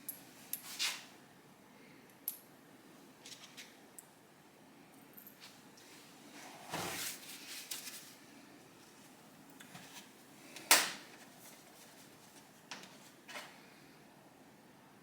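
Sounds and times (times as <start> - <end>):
rustle or scrape: 0.5 - 1.1, 5.4 - 8.2.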